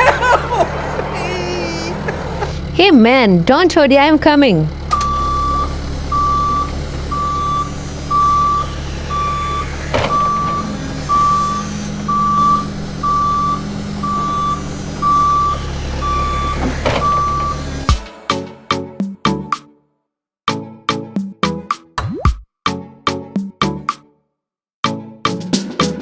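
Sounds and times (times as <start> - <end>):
low engine hum: 0.0 - 18.0
truck reversing beeper: 0.0 - 18.0.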